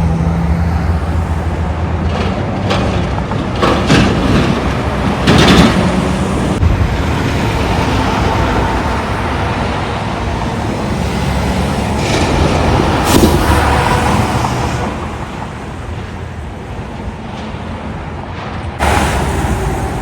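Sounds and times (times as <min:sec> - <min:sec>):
truck diesel engine running: 0:18.8 - 0:20.0.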